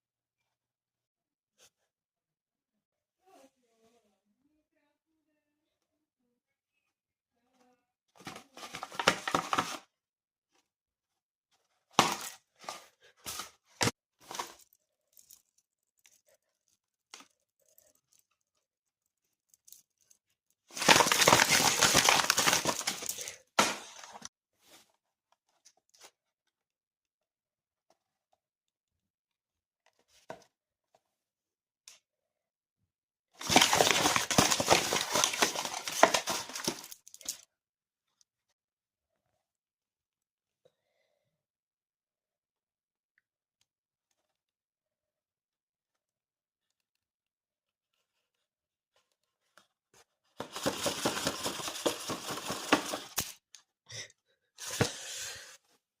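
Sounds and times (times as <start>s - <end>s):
stiff paper crinkling: 20.7s - 24.3s, 33.4s - 37.4s, 50.4s - 53.4s.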